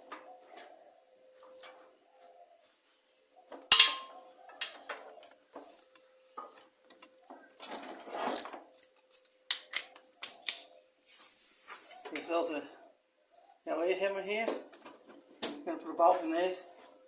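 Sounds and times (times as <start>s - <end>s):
metal tools clanking: 3.7s - 4.2s
sharp metallic clank: 3.7s - 4.2s.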